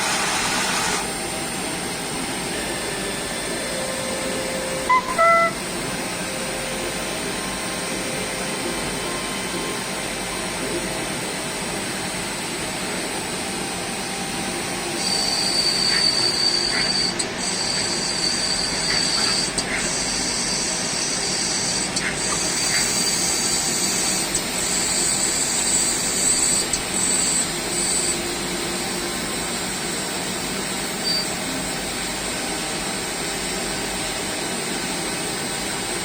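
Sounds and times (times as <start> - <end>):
high machine whine: 0.0 - 36.0
lathe machine noise: 0.0 - 36.0
short beeps: 4.9 - 5.6.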